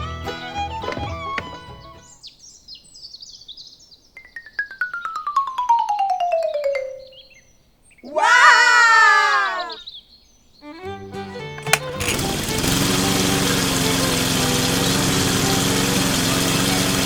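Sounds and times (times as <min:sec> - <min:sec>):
falling tone with xylophone ticks: 0:04.2 - 0:07.4.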